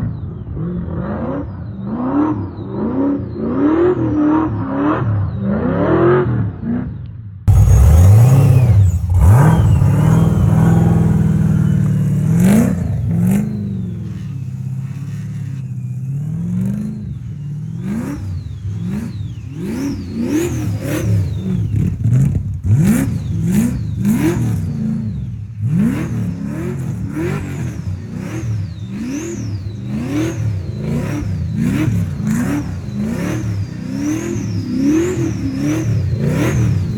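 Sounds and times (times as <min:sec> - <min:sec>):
supercharged car engine revving: 0:07.5 - 0:36.9
supercharger whine: 0:07.5 - 0:36.9.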